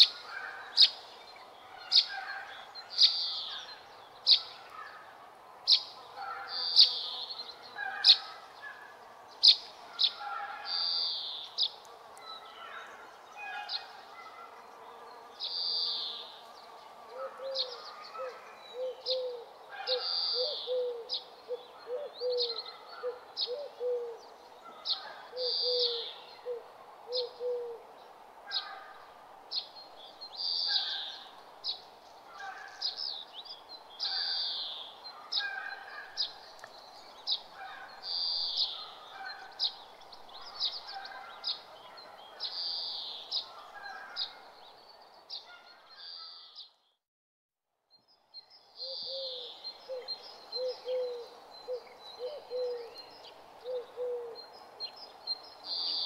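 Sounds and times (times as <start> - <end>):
bird calls: 0.0 - 14.6, 17.1 - 27.8, 28.5 - 46.8, 48.8 - 56.0.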